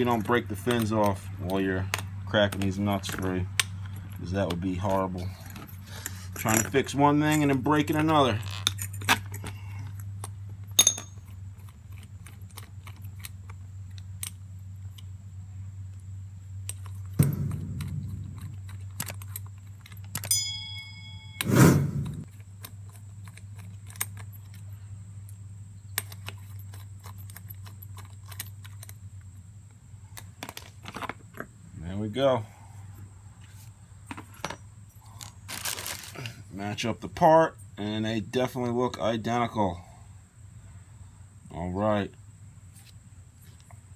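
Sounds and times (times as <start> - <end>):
metallic ring: 10.8 - 11.2, 20.2 - 22.2
wrench clicking and clinking: 10.8 - 11.2
louder knocks: 17.2 - 18.6.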